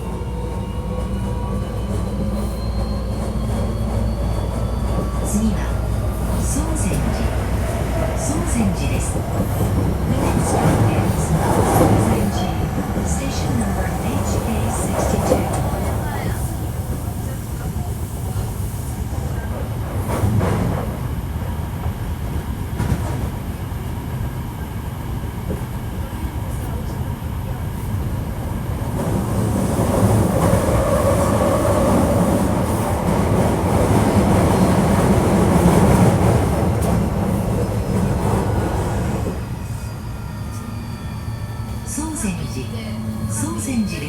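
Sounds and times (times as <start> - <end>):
wheels rumbling on rail: 0.0 - 43.9
train motor hum: 5.2 - 16.6.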